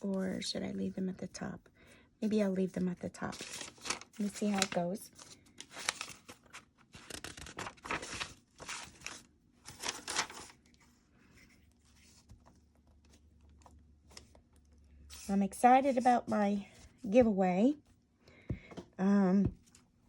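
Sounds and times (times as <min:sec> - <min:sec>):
paper handling rustle: 0:02.8 - 0:17.2
paper tearing: 0:07.0 - 0:10.6.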